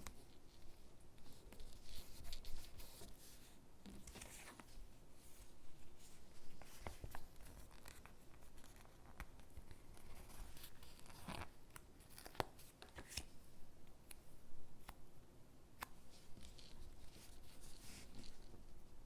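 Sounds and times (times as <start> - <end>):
paper rustling: 1.2 - 4.8.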